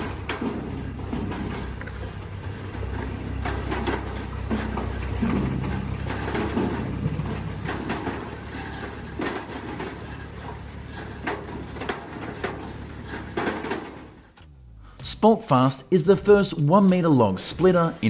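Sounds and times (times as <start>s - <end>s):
wood pieces knocking and clunking: 0.0s - 14.4s
firewood machine droning: 0.0s - 15.7s.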